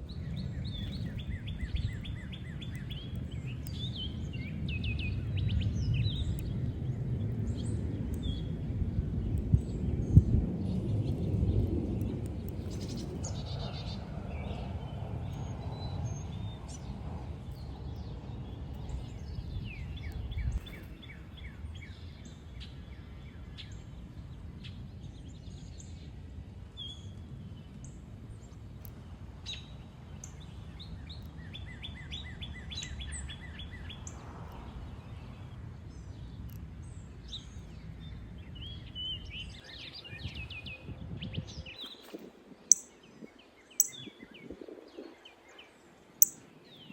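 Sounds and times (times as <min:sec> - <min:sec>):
bird trills: 0:42.7 - 0:43.0, 0:43.8 - 0:44.1
birds chirping and calling: 0:42.7 - 0:43.0, 0:43.7 - 0:44.3, 0:46.2 - 0:46.9.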